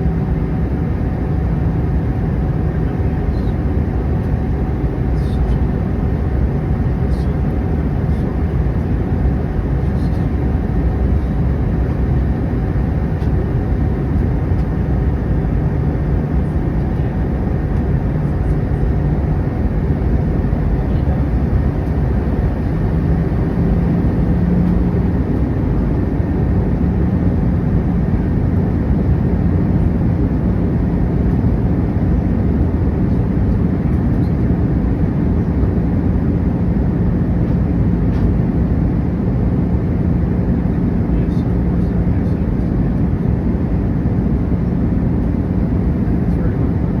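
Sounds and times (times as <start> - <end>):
aircraft engine and airflow drone: 0.0 - 47.0
low hum: 2.9 - 29.9.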